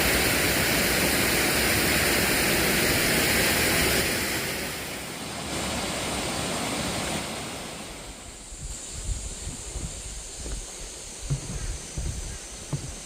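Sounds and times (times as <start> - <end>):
waterfall rushing: 0.0 - 8.3.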